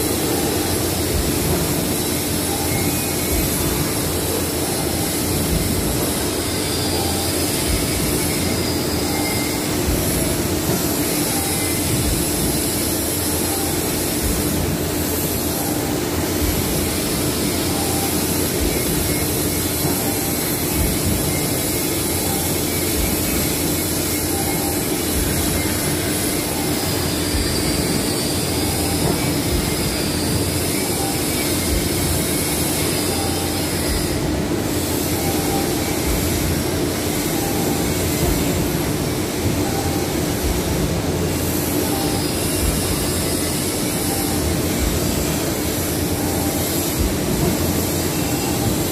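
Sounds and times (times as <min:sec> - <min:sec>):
industrial machinery roaring: 0:00.0 - 0:48.9.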